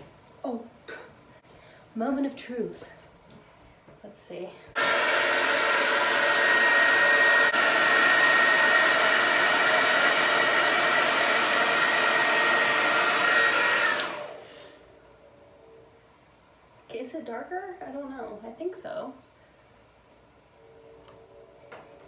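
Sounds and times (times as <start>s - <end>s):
hair dryer blowing: 4.7s - 14.8s.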